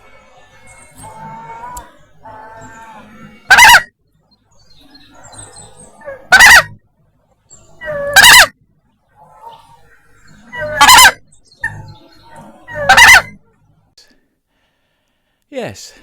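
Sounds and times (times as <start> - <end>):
faint calls of other birds: 0.0 - 15.3
goose honking: 0.8 - 3.9, 6.0 - 6.8, 7.8 - 8.5, 10.5 - 13.4.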